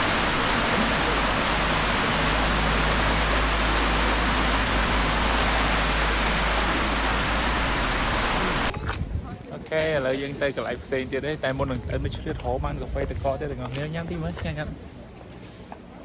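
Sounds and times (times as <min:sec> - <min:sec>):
falling water rushing: 0:00.0 - 0:08.7.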